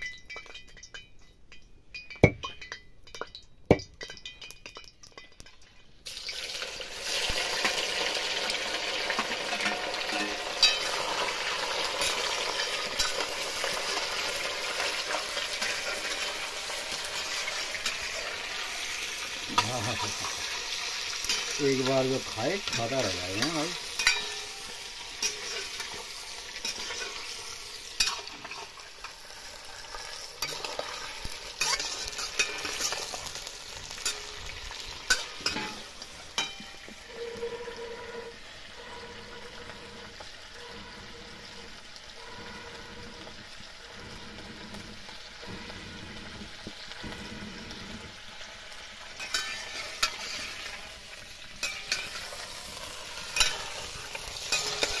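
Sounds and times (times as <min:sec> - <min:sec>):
meat sizzling in hot oil: 0:04.0 - 0:55.0
steel spoon scraping and clinking: 0:09.2 - 0:41.6, 0:49.2 - 0:50.9, 0:51.5 - 0:55.0.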